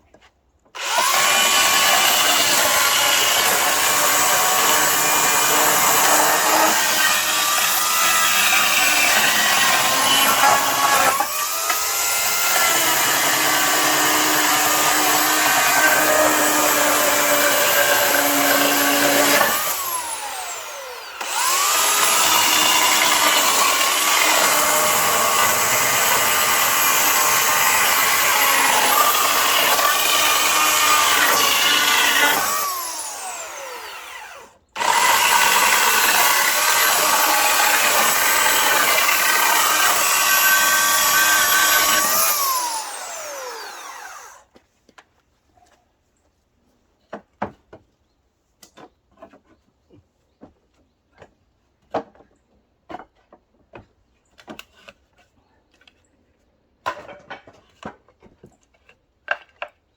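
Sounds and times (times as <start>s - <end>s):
power tool motor whining: 0.8s - 44.4s.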